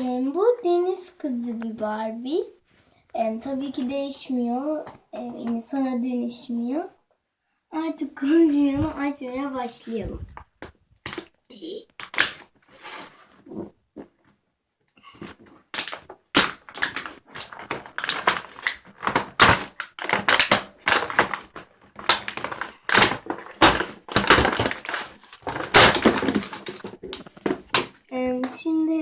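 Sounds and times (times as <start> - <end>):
packaging tearing and crackling: 15.7 - 28.0.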